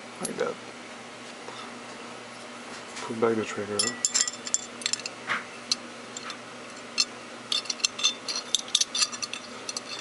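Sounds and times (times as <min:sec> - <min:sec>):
small steel parts clicking: 0:04.0 - 0:05.1, 0:05.7 - 0:10.0.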